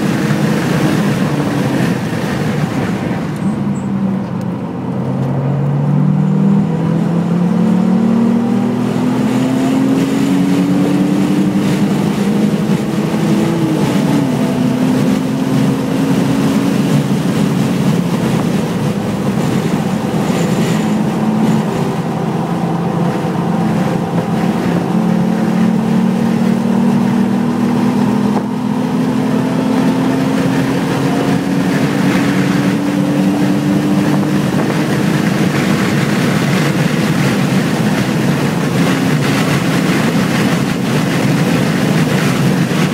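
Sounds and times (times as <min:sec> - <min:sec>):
racing car engine accelerating: 0:00.0 - 0:42.9.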